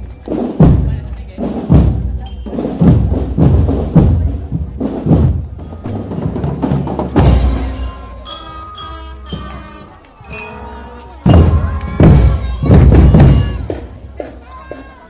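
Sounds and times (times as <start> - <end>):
marching drum band: 0.0 - 15.0
bell-like pitched notes: 5.6 - 12.2.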